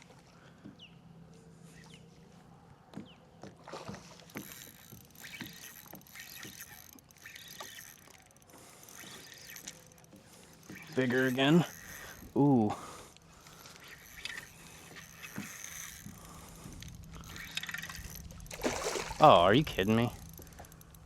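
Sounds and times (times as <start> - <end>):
water splashing: 3.6 - 12.4, 13.4 - 20.8.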